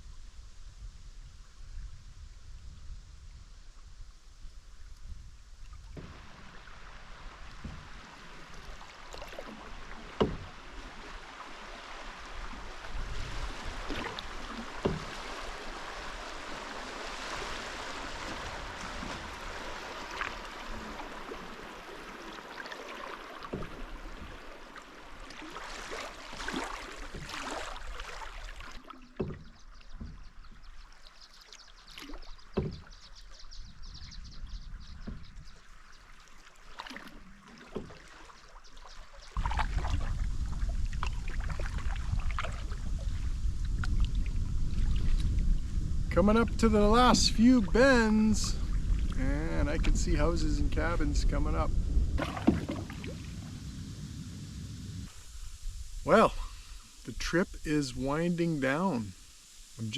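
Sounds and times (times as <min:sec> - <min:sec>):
water splashing from paddling: 0:05.1 - 0:45.5, 0:52.0 - 0:53.8
sharp knocks: 0:10.2 - 0:10.5.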